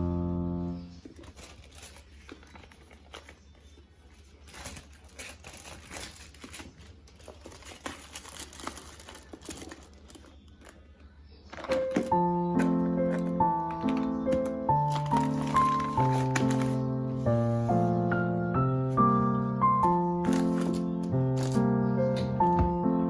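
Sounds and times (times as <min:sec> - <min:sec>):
crinkling and rustling: 0:00.8 - 0:18.2, 0:19.8 - 0:22.9.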